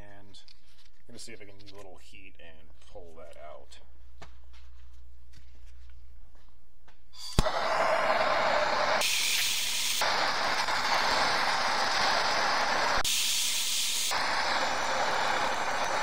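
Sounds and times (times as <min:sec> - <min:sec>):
gas torch flame hissing: 0:07.2 - 0:16.0.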